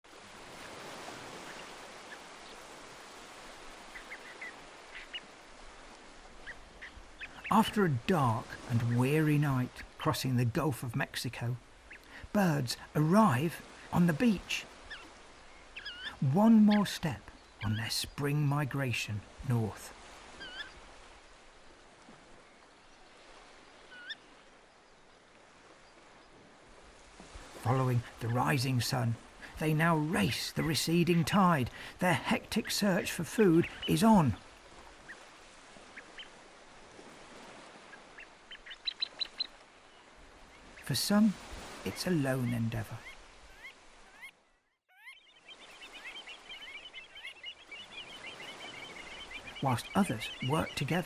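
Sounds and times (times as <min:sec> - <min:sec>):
surf washing on beach: 0:00.0 - 0:44.2, 0:45.4 - 0:51.0
outdoor background noise: 0:00.0 - 0:51.0
faint shorebird calls: 0:00.1 - 0:51.0
bird calls with rising upturn: 0:20.3 - 0:20.9, 0:22.4 - 0:24.4, 0:37.7 - 0:40.9, 0:41.9 - 0:51.0.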